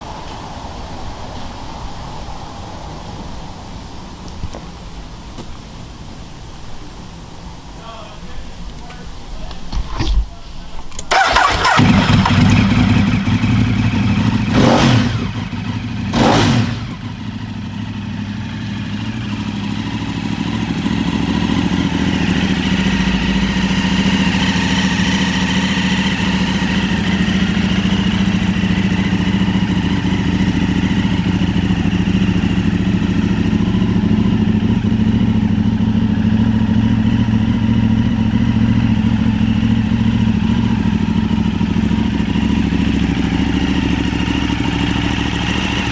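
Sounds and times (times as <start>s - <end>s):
motorcycle engine revving and idling: 11.0s - 45.9s.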